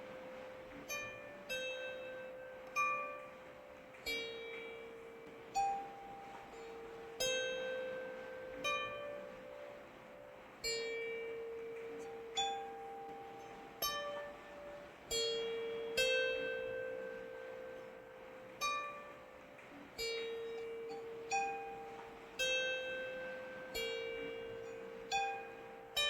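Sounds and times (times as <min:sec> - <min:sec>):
faint hiss of rain: 0:00.0 - 0:26.0.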